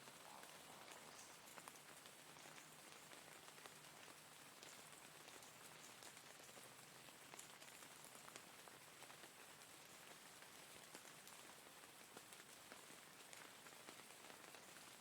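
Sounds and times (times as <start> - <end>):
rain hissing: 0.0 - 2.4.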